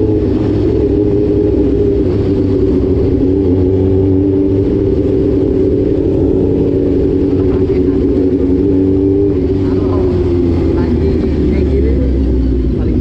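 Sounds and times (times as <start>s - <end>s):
motorcycle engine cruising: 0.0s - 13.0s.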